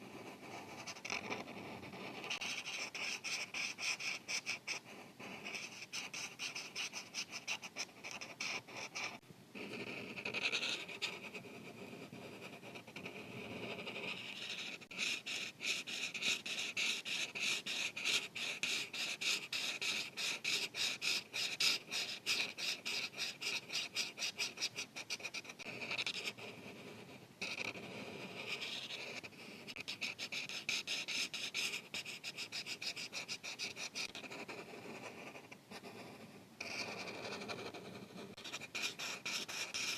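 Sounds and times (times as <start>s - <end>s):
marker scratching on paper: 0.0s - 39.9s.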